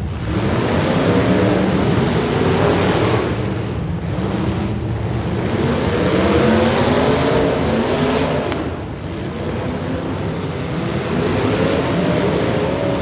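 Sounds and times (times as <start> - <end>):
car engines revving: 0.0 - 13.0
steady rush of noise: 0.0 - 13.0.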